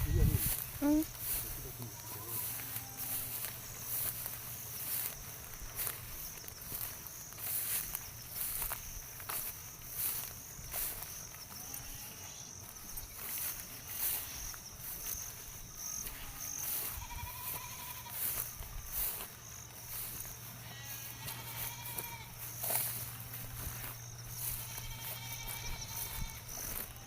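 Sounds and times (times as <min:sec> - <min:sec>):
livestock bleating: 0:00.0 - 0:03.4, 0:11.5 - 0:12.6, 0:15.9 - 0:18.5, 0:20.5 - 0:23.5, 0:24.3 - 0:27.0
high insect buzz: 0:00.0 - 0:27.0.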